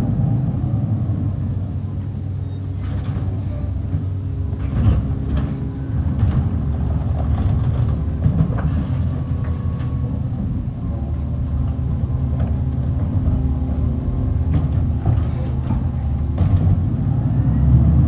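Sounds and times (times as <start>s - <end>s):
garbage truck engine running: 0.0s - 18.0s
light clanks and knocks: 2.9s - 17.1s.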